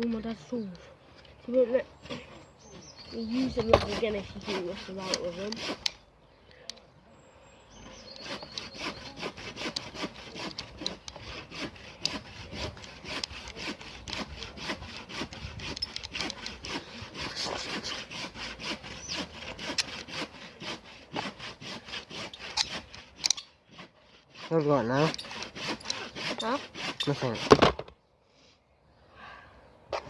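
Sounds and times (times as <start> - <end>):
hand saw cutting wood: 2.0 - 6.0, 7.9 - 27.9.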